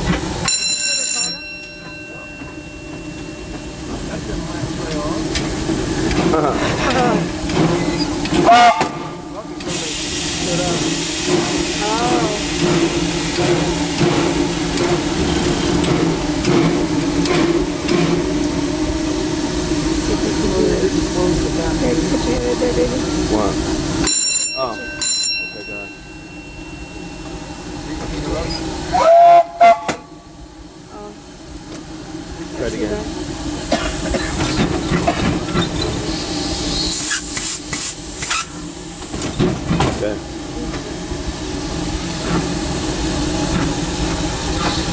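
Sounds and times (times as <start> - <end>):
steam locomotive hum and hiss: 0.0 - 44.9
short hisses of steam: 9.6 - 13.4, 36.0 - 38.7.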